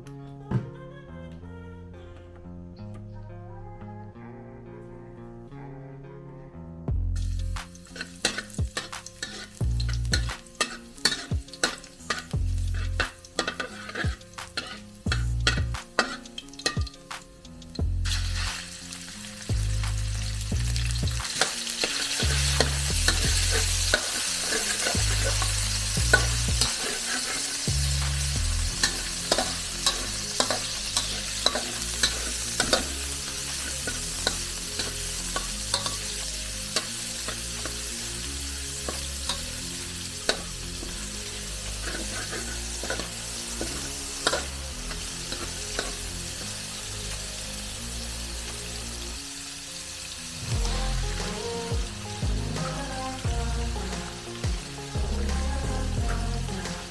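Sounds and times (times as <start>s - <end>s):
rice sizzling in a pan: 7.2s - 56.9s
spatula scraping a pan: 7.9s - 17.0s, 21.3s - 37.8s, 41.6s - 46.0s.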